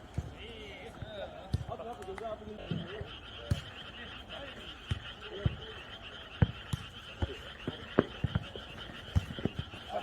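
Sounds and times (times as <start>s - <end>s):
night insects chorus: 0.0s - 10.0s
ball kicked and bouncing: 0.1s - 3.6s, 4.9s - 5.6s, 6.4s - 10.0s.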